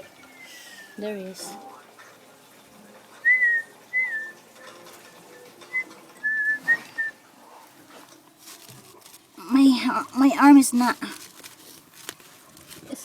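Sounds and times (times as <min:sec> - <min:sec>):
short whistled notes: 0:03.2 - 0:04.5, 0:05.7 - 0:07.2.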